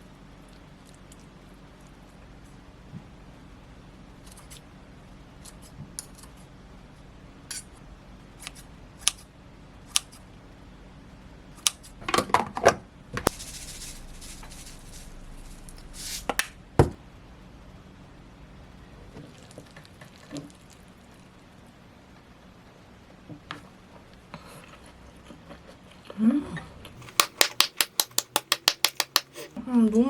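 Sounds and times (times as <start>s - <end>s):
hiss: 13.3s - 16.6s
sharp clacks: 27.0s - 29.5s
utensils and dishes clicking: 27.0s - 29.6s.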